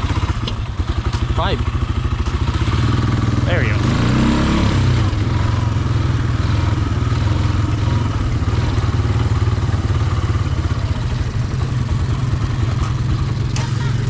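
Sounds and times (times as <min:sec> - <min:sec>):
off-road vehicle engine running: 0:00.0 - 0:14.0.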